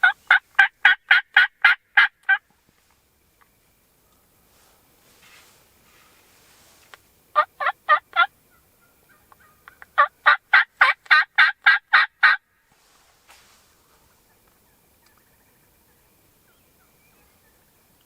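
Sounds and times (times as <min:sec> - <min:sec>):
turkey yelps: 0:00.0 - 0:02.4, 0:07.4 - 0:12.4.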